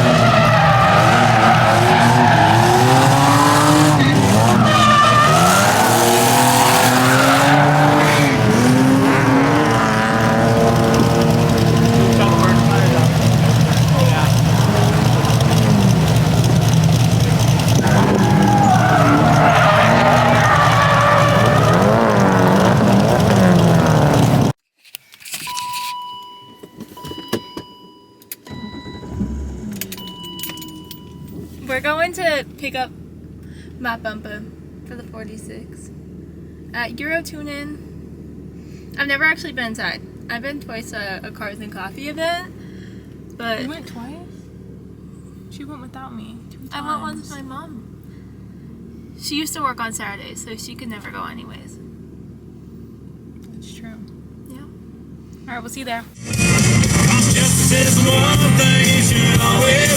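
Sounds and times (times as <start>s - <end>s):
tires squealing: 0.0s - 24.5s, 56.2s - 59.9s
car engine revving hard: 0.0s - 24.6s, 28.8s - 30.0s, 56.2s - 59.9s.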